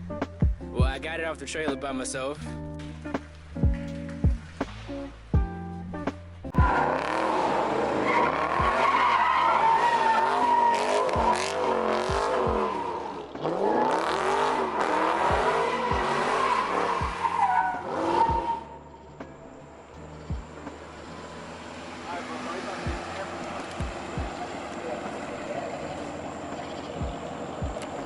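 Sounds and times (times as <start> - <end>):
car engine revving: 3.1 - 28.0
tyres squealing: 6.5 - 28.0.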